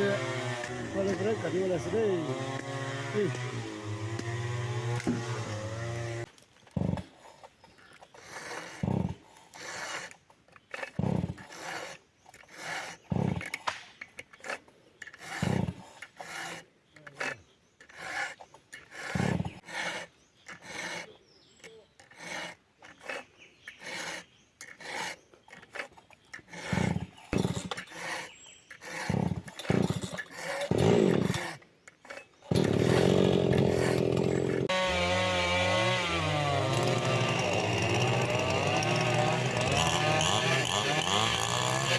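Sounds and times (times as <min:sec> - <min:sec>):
chainsaw engine running: 0:00.0 - 0:07.0, 0:26.5 - 0:28.2, 0:28.9 - 0:31.6, 0:32.5 - 0:41.9
wood being sawn by hand: 0:00.0 - 0:41.9.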